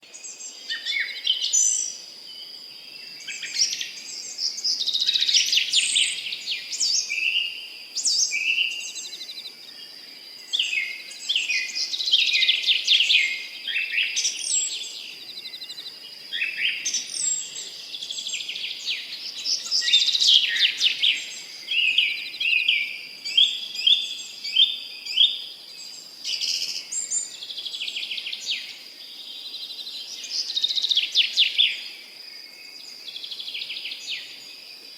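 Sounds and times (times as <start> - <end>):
songbirds singing and chirping: 0.0 - 34.9.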